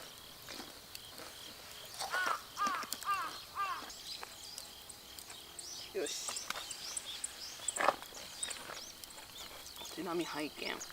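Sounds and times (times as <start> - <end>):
crow cawing: 2.0 - 3.9.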